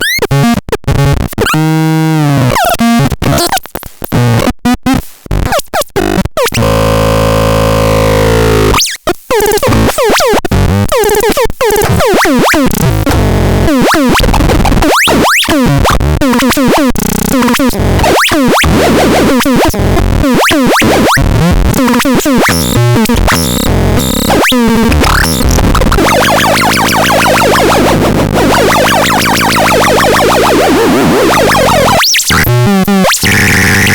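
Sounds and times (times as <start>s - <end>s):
harsh synthesized noise: 11.1s - 33.9s.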